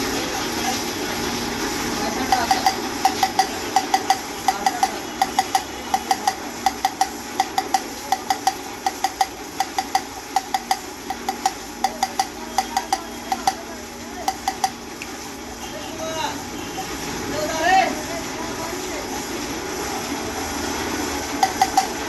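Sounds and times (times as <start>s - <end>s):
light metal tapping: 2.3s - 13.6s, 14.2s - 14.8s, 21.4s - 22.0s.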